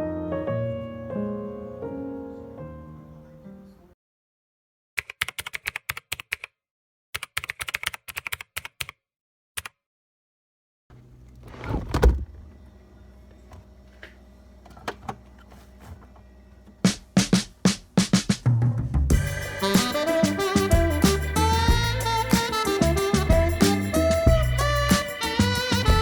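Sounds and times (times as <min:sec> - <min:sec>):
room sound: 0:11.3 - 0:26.0
loud rustling thump: 0:16.9 - 0:19.3.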